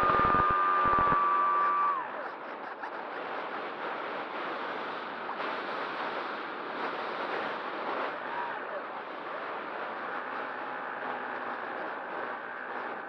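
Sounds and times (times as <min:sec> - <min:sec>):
model aircraft motor whining: 0:00.0 - 0:02.3.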